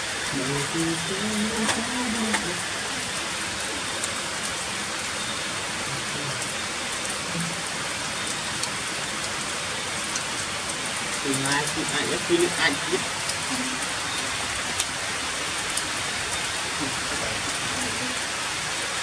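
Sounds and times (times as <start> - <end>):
heavy rain on stone paving: 0.0 - 19.0.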